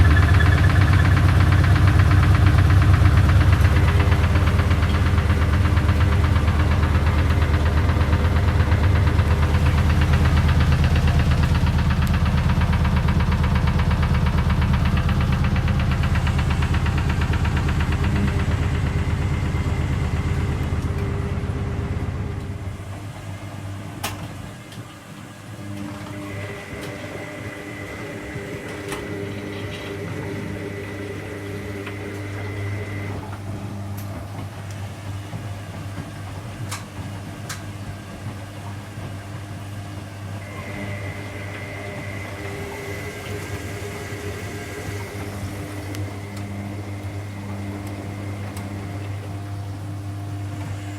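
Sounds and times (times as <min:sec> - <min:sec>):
washing machine spinning: 0:00.0 - 0:50.9
thin whine: 0:40.4 - 0:50.9.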